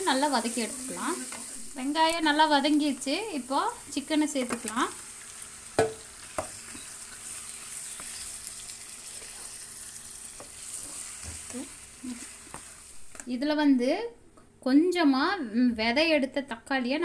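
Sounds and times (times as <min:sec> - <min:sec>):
chicken sizzling in hot oil: 0:00.0 - 0:13.1
spoon knocking against pan: 0:05.8 - 0:06.9.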